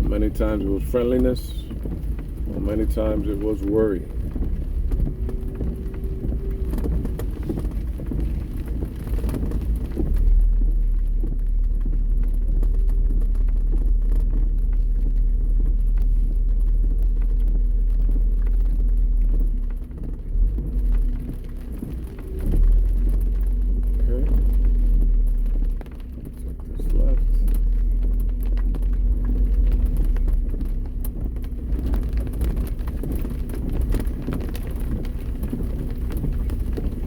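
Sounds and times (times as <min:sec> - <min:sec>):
tyres and engine rumbling: 0:00.0 - 0:37.0.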